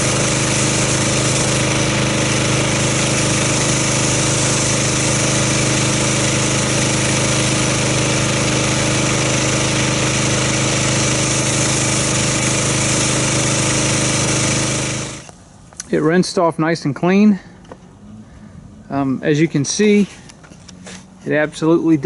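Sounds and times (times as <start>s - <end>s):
pressure washer engine running: 0.0s - 15.3s
water jet spraying: 0.0s - 15.3s.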